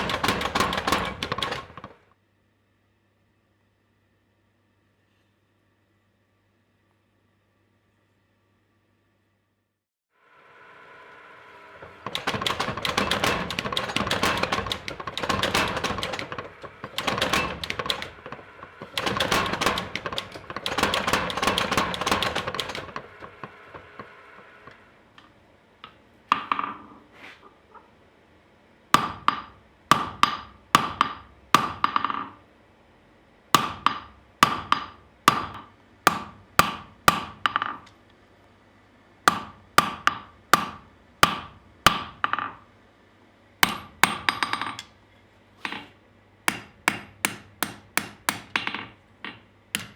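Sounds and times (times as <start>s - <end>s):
hammer on anvil: 43.6s - 44.9s, 46.5s - 49.9s.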